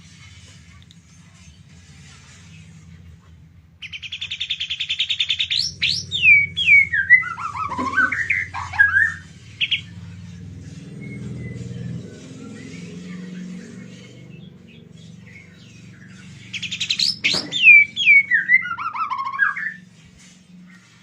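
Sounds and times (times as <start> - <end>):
bird singing trills and whistles: 3.8 - 19.9.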